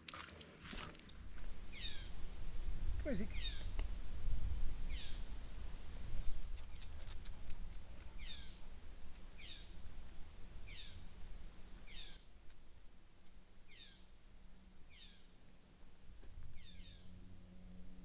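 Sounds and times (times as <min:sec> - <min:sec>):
low rumble: 0:01.2 - 0:12.9.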